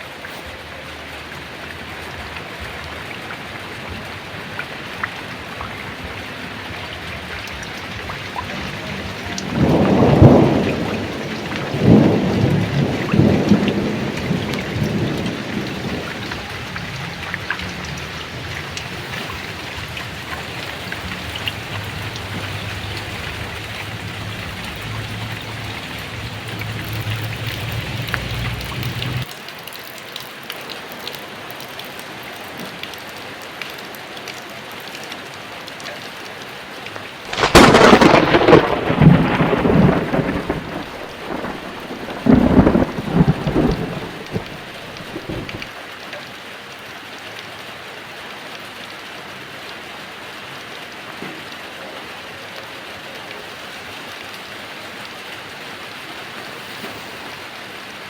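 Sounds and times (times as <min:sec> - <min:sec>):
heavy rain: 0:00.0 - 0:58.0
loud thunderclap: 0:09.3 - 0:29.2, 0:37.3 - 0:45.7.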